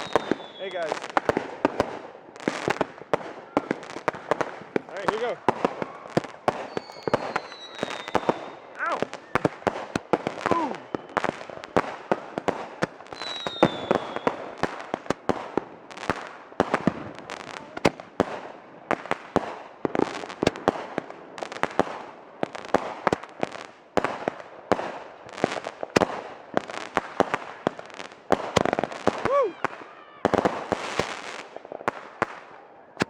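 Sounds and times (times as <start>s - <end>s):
falling firework whistle: 0.0s - 0.8s, 5.6s - 9.6s, 10.4s - 11.5s, 13.1s - 14.5s
fireworks bangs and pops: 0.0s - 33.0s.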